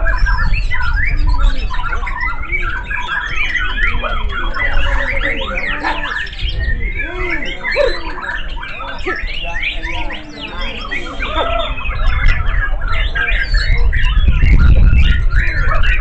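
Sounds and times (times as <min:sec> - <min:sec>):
birds singing: 0:00.0 - 0:16.0.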